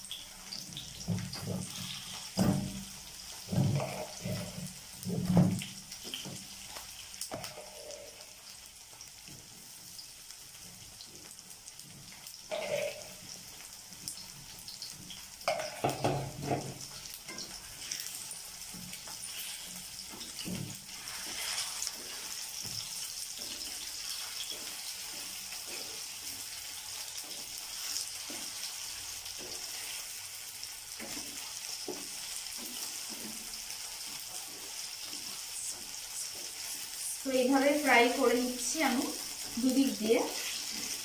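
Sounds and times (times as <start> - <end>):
food sizzling in hot oil: 0.0 - 41.0
wooden spatula scraping a pan: 0.8 - 8.5, 9.3 - 41.0.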